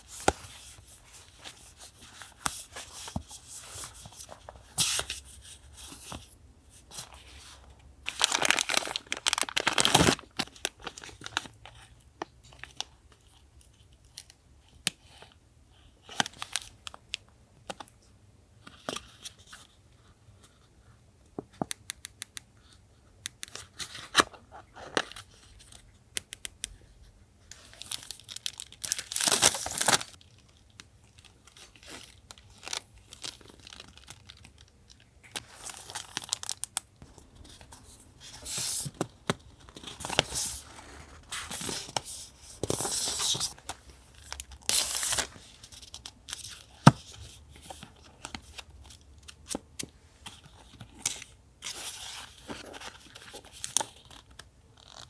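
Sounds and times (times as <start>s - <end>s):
paper rustling: 35.4s - 45.9s.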